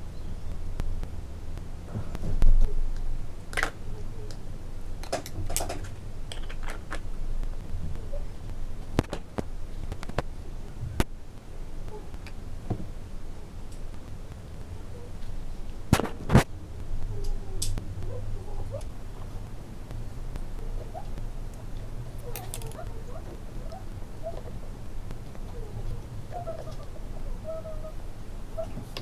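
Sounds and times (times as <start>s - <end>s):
plastic toy pieces clicking: 22.2s - 22.8s.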